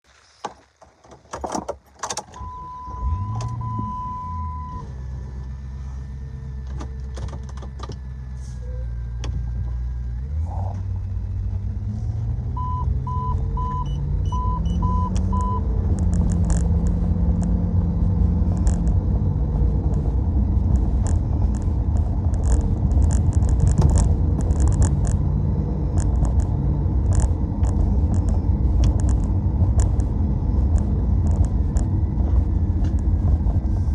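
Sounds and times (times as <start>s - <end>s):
car engine starting and driving: 0.1s - 33.9s
dashboard chime beeping: 12.6s - 15.6s
clicks: 20.7s - 25.3s, 25.9s - 32.0s.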